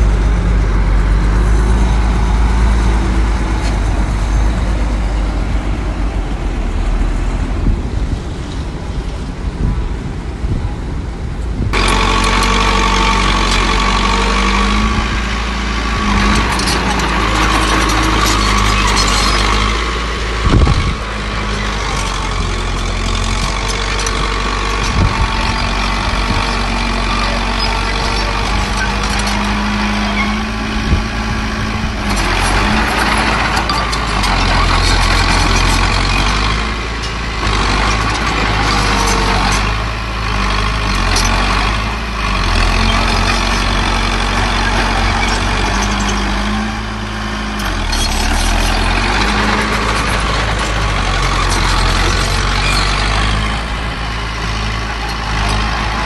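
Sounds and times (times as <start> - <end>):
diesel engines running: 0.0 - 56.0
metal clanks: 32.1 - 39.8.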